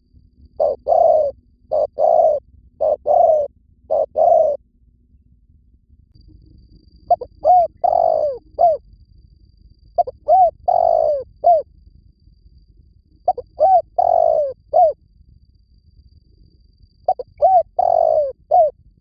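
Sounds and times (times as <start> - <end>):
dove cooing: 0.6 - 4.6, 7.1 - 8.8, 10.0 - 11.7, 13.2 - 15.0, 17.1 - 18.8.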